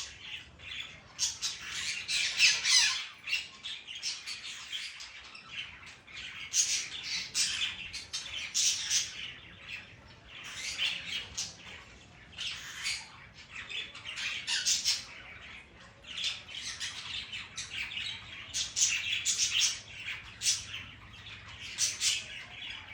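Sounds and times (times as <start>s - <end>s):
parrot squawking: 0.0s - 5.0s.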